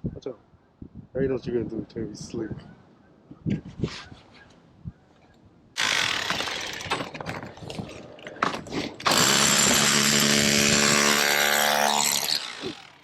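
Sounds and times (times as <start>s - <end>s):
demolition hammer chipping brick: 5.8s - 13.0s.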